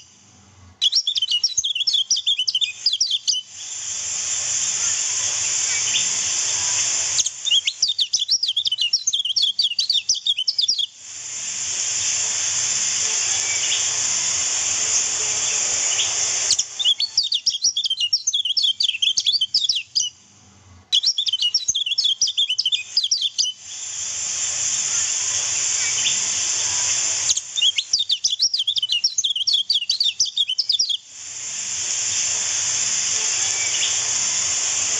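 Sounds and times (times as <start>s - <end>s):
steady high hiss: 0.0s - 34.9s
bird chattering chirps: 0.8s - 3.5s, 5.2s - 10.9s, 13.3s - 14.0s, 15.0s - 20.2s, 21.0s - 23.6s, 27.3s - 31.0s, 33.4s - 34.1s.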